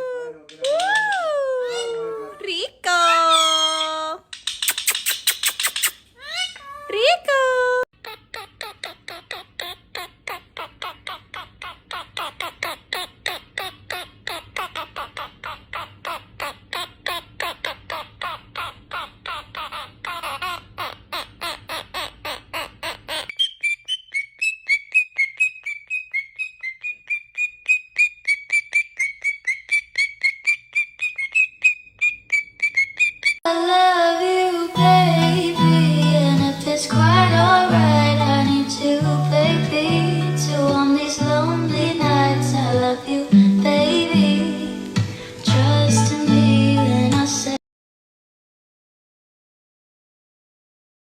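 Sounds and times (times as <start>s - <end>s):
parrot squawking: 0.0s - 7.0s, 8.0s - 33.4s.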